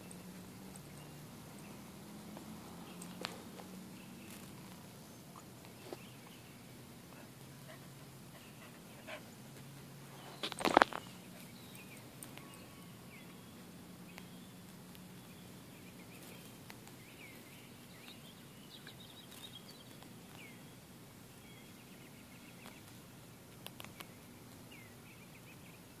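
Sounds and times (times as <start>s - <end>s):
distant birds calling: 0.0s - 26.0s.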